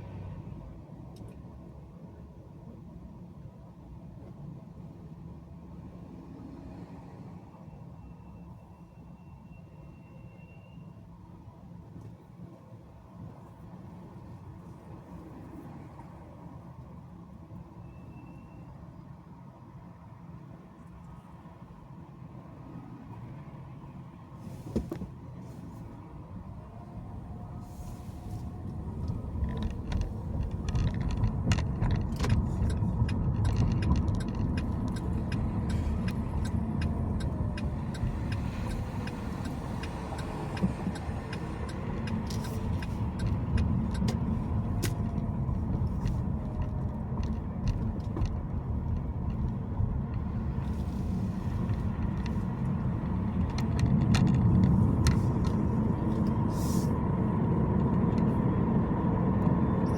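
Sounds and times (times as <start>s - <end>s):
car road and engine rumble: 0.0s - 59.9s
small clicks and rattles: 29.0s - 56.4s.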